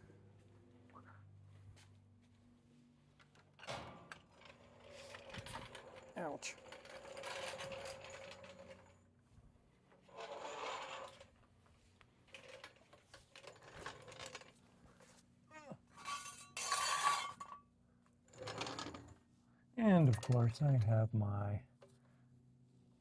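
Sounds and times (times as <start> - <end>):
metal tools clinking and scraping: 15.9 - 17.6.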